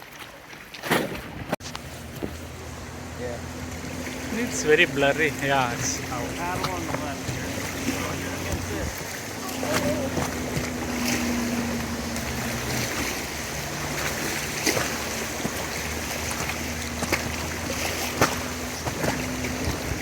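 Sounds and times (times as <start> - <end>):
paddle splashes: 0.0 - 20.0
rushing river water: 0.0 - 20.0.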